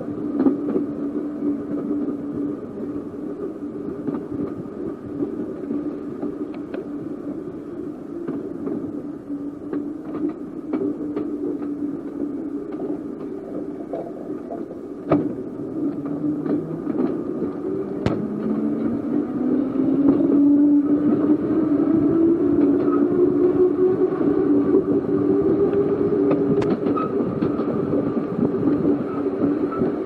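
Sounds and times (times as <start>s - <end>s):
electric tram motor hum: 0.0s - 30.0s
clicks from the rails: 25.7s - 27.7s.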